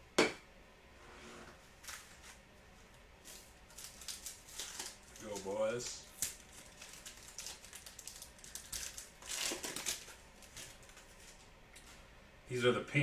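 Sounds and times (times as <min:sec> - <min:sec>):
wrapper tearing and crinkling: 0:03.3 - 0:11.4.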